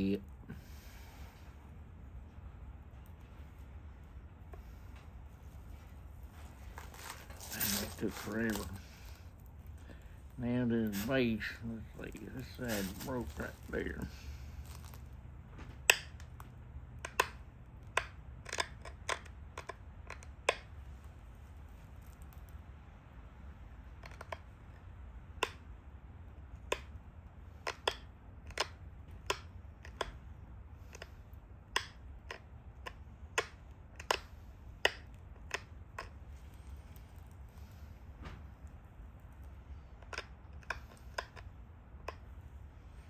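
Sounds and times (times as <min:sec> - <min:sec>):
stone flakes snapping with clicks: 0:06.6 - 0:10.1, 0:10.8 - 0:15.2, 0:15.8 - 0:20.7, 0:24.0 - 0:25.8, 0:26.6 - 0:27.0, 0:27.6 - 0:30.2, 0:30.8 - 0:37.9, 0:39.2 - 0:42.3.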